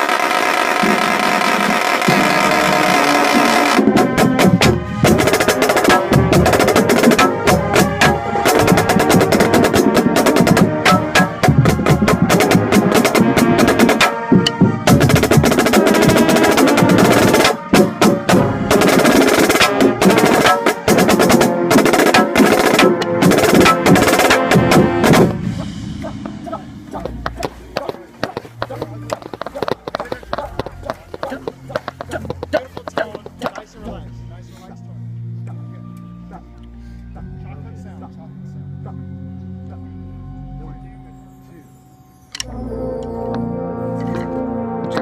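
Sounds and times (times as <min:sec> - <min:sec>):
marching snare drum: 0:00.0 - 0:33.7
marching band playing: 0:00.0 - 0:34.2.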